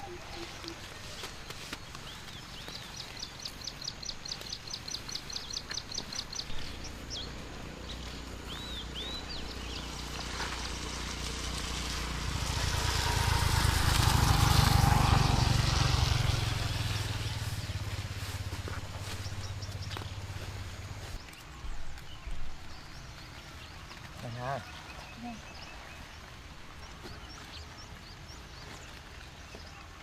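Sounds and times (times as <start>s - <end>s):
bird chirping: 0.0s - 14.6s, 15.2s - 29.8s
vehicle engine passing: 6.4s - 21.2s.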